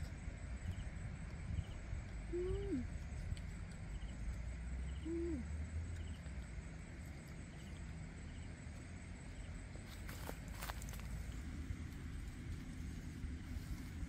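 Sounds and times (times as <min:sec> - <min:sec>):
low background rumble: 0:00.0 - 0:14.0
bird hooting call: 0:04.9 - 0:05.5.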